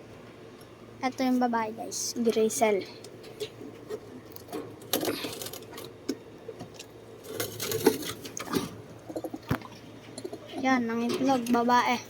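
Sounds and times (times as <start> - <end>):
clicks and rattles in a cage: 3.2 - 11.7.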